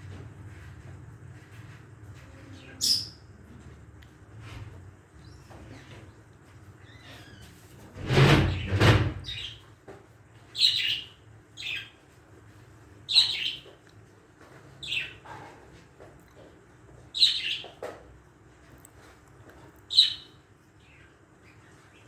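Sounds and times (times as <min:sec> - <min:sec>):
bird chirping: 0:02.6 - 0:03.3, 0:10.6 - 0:12.0, 0:13.1 - 0:13.7, 0:17.1 - 0:17.8, 0:19.9 - 0:22.0.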